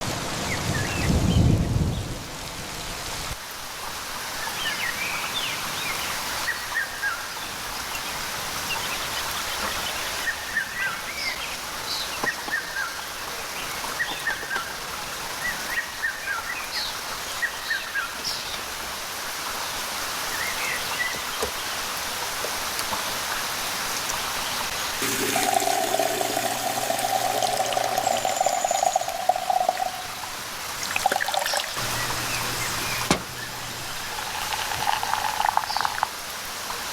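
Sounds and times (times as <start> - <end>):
steady rain: 0.0 - 10.3, 12.9 - 31.0, 31.7 - 36.9
water trickling and pouring: 24.9 - 36.3
steady humming tone: 31.8 - 34.3
bird chirps: 31.8 - 34.4.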